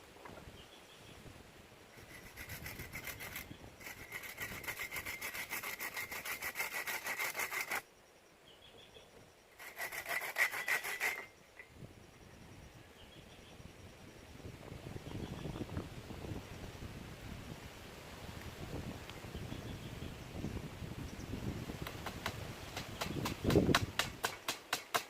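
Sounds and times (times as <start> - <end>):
hand saw cutting wood: 2.0 - 7.8, 9.6 - 11.3.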